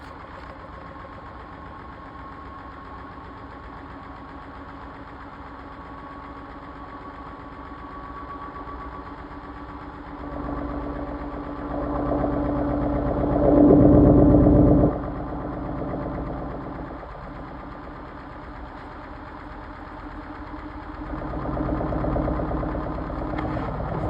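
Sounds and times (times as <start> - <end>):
washing machine motor hum: 2.8 - 24.0.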